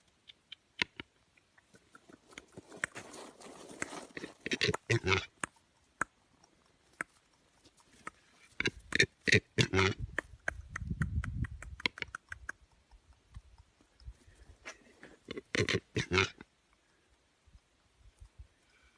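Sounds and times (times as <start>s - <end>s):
animal grunting: 4.1s - 5.3s, 8.6s - 10.1s, 14.7s - 16.4s.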